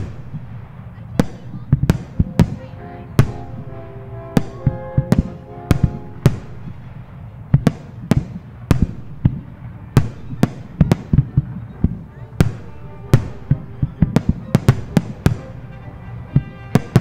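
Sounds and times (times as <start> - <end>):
low rumble: 0.0 - 16.6
firework shells bursting: 0.0 - 17.0
show music: 1.9 - 7.5, 12.4 - 17.0.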